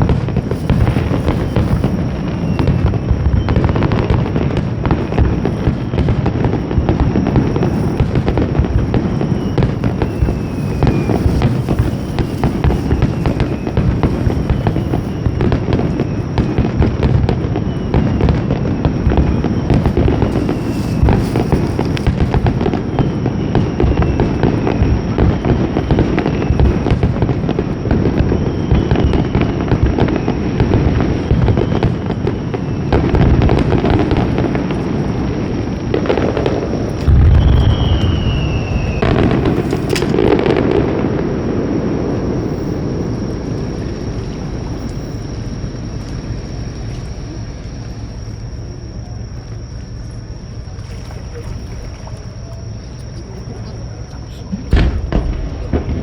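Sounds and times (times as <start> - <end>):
firework shell bursts and crackling: 0.0 - 56.0
falling whistle-like tones: 0.7 - 3.9, 8.9 - 16.8, 17.5 - 24.9, 36.7 - 41.0.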